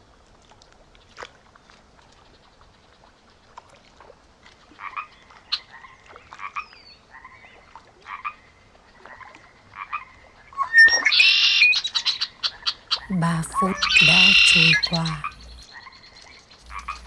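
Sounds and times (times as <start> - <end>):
frogs croaking: 13.0 - 16.0, 16.6 - 17.0.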